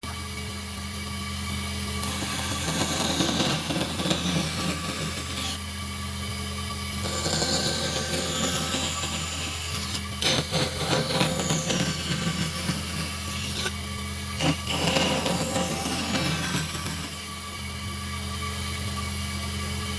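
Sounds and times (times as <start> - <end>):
sawing or rasping wood: 2.0 - 5.6, 7.0 - 17.5.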